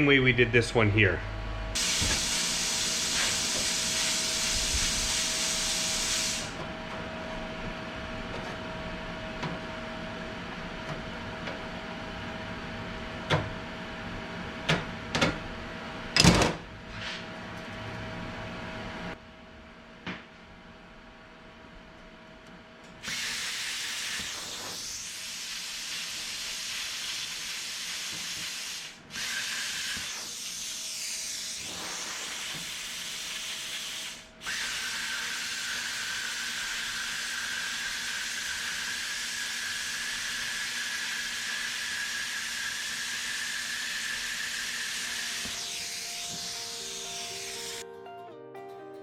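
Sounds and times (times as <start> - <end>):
plasma cutter air hiss: 1.8 - 6.6, 23.0 - 47.8.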